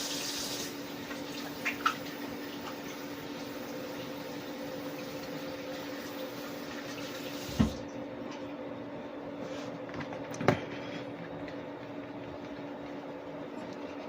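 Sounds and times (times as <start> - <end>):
tap running water: 0.0 - 7.9.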